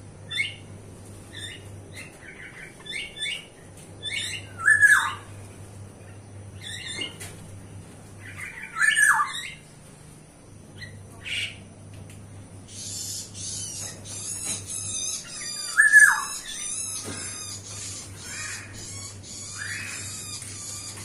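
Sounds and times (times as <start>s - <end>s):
birds chattering high-pitched: 0.0s - 21.0s
harsh bird squawk: 1.3s - 5.3s, 8.2s - 9.6s, 12.7s - 21.0s.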